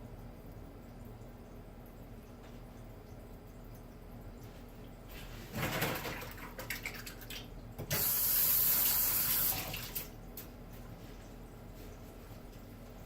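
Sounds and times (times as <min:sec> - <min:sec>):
tap water running into sink: 0:05.5 - 0:10.2.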